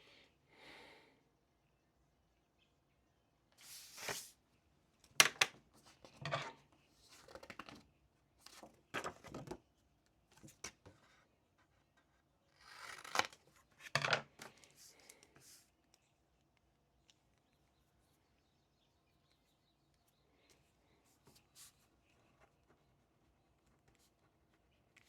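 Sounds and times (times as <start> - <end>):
rustling and scraping on a desk: 3.6 - 4.4, 5.8 - 7.8.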